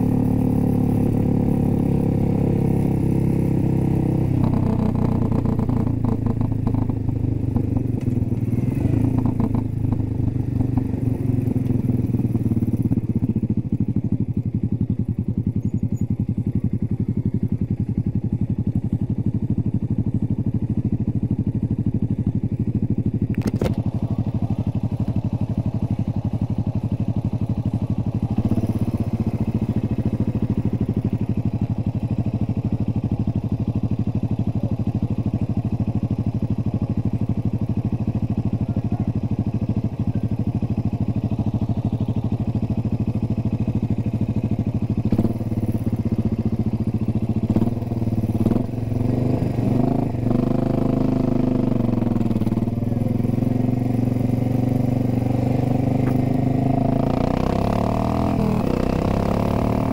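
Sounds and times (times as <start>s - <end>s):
motorcycle engine idling: 0.0s - 59.9s
sharp click: 23.3s - 23.8s.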